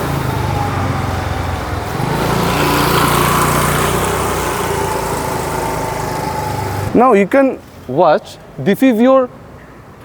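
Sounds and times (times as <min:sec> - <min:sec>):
engine humming: 0:00.0 - 0:07.3.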